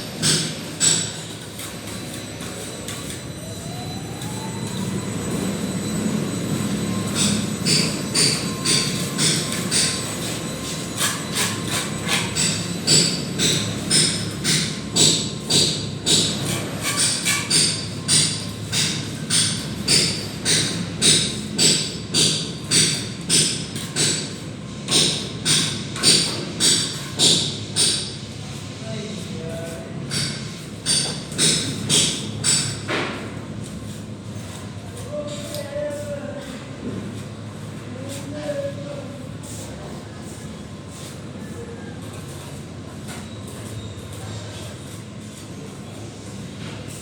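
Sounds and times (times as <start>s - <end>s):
trowel scraping plaster: 0.7s - 3.2s, 8.3s - 14.8s, 16.2s - 19.2s.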